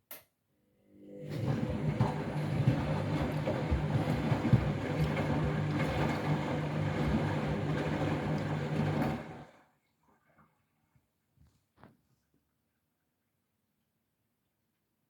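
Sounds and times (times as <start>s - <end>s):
washing machine running: 1.1s - 9.7s.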